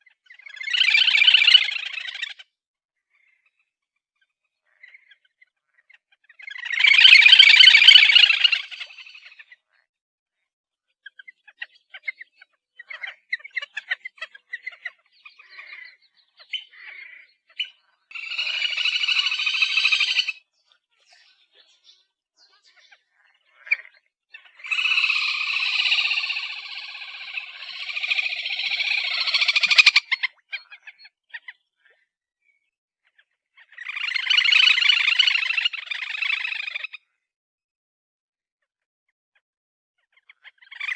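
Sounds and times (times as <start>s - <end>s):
grebe chirping and trilling: 0.0s - 3.5s, 4.7s - 9.9s, 11.0s - 32.0s, 33.1s - 37.1s, 40.1s - 40.9s.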